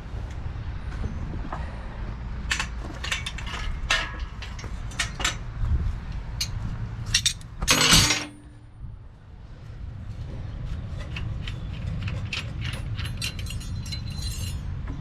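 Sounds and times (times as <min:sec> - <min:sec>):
low steady rumble: 0:00.0 - 0:15.0
metal clatter: 0:02.5 - 0:05.5, 0:06.4 - 0:08.5, 0:10.9 - 0:15.0
metal tools clinking: 0:02.5 - 0:05.5, 0:06.4 - 0:08.5, 0:11.0 - 0:14.8.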